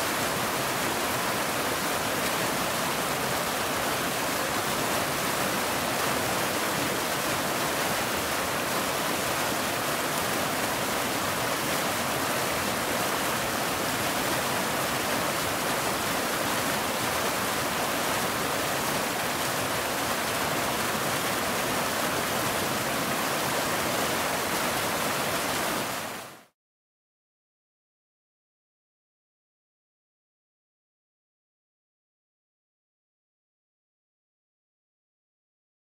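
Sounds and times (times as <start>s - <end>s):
waterfall rushing: 0.0s - 26.5s.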